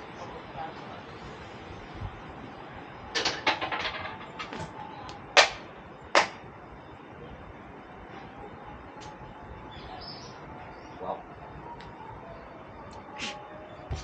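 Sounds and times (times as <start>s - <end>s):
sharp hand claps: 4.5s - 5.6s, 6.2s - 6.4s.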